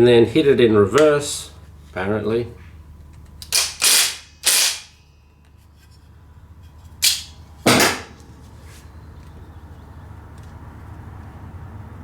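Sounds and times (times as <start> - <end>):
impact driver hammering in bursts: 3.4 - 5.0, 7.0 - 8.2.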